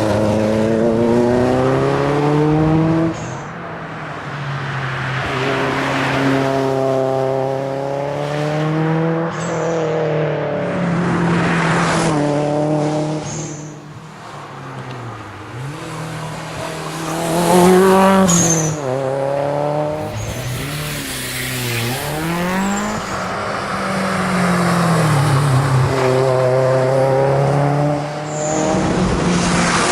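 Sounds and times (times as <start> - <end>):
car engine accelerating hard: 0.0 - 29.9
high chirp at gear change: 17.1 - 19.0, 19.9 - 23.5.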